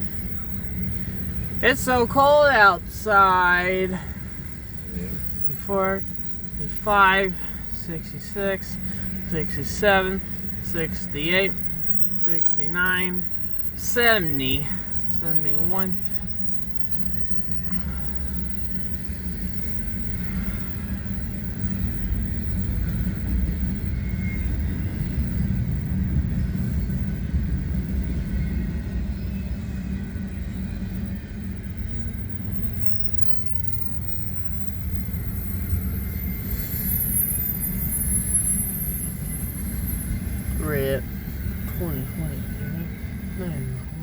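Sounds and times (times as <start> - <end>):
freight train wheels rumbling on rail: 0.0 - 1.6.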